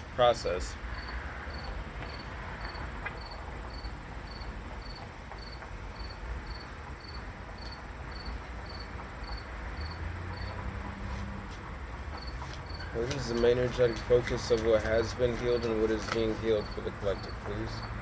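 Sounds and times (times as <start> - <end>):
insect chirping: 0.8 - 11.4, 12.1 - 13.4.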